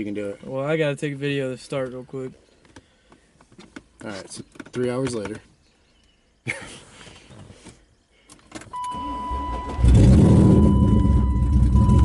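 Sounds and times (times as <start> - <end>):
car engine cranking and idling: 8.3 - 12.0
steady high beep: 8.8 - 12.0.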